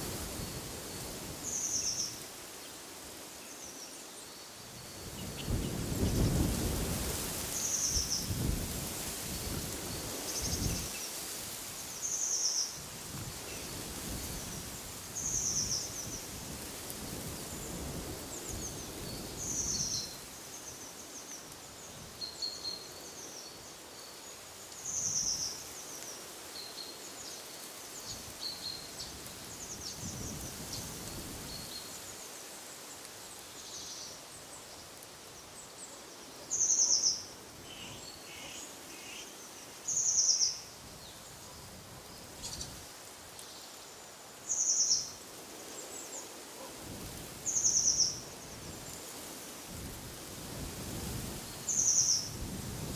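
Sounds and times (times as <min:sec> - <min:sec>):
wind gusts on microphone: 0:00.0 - 0:02.3, 0:04.6 - 0:11.9, 0:12.8 - 0:20.6, 0:28.0 - 0:32.1, 0:46.6 - 0:52.9
wind rustling: 0:00.0 - 0:52.9.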